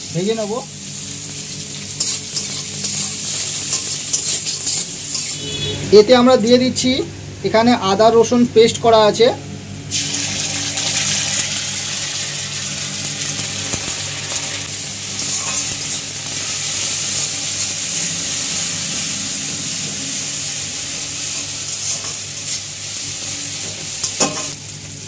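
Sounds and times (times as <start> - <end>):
onions sizzling in hot oil: 0.0 - 5.7, 9.7 - 25.0
spatula stirring in pan: 2.0 - 5.4.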